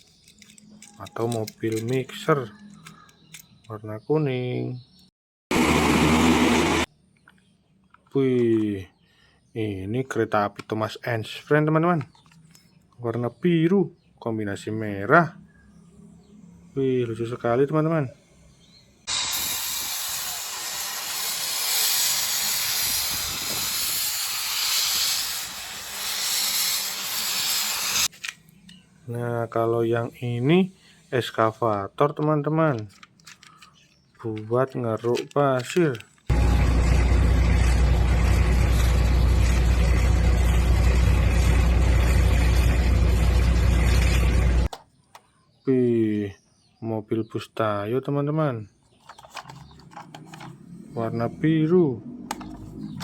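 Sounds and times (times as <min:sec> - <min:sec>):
steam hissing: 0:19.1 - 0:28.1
large engine humming: 0:36.3 - 0:44.7.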